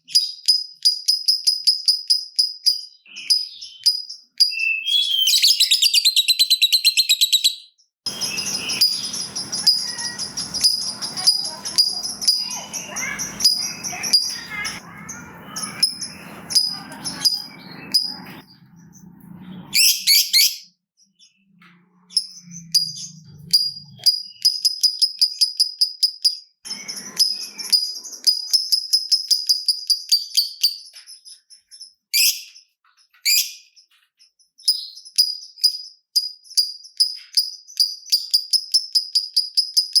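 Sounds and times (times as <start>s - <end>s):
lovebird chattering: 0.1s - 18.5s, 22.2s - 30.9s.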